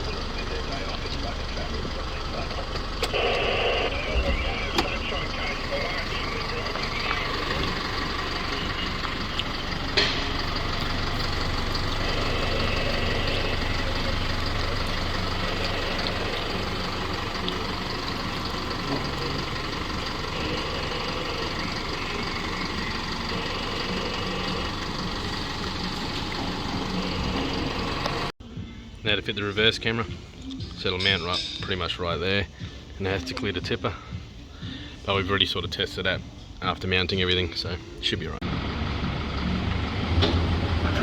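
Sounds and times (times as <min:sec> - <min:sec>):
truck diesel engine idling: 0:00.0 - 0:28.4, 0:29.8 - 0:41.0
sharp metallic clank: 0:31.0 - 0:31.9.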